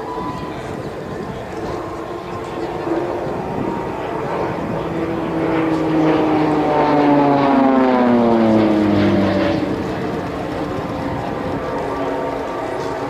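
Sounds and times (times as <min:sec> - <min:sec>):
propeller planes flying past: 0:00.0 - 0:13.0.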